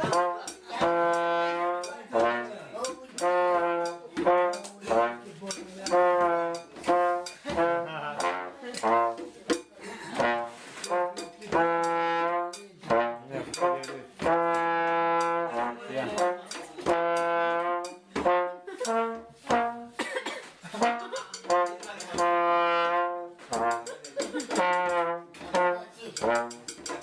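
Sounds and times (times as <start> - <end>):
brass instrument long notes: 0.0 - 2.6, 3.2 - 5.3, 5.9 - 9.2, 10.1 - 20.0, 20.8 - 23.9, 24.6 - 26.6
sharp percussive hits: 0.0 - 9.0, 20.8 - 22.5, 23.5 - 27.0.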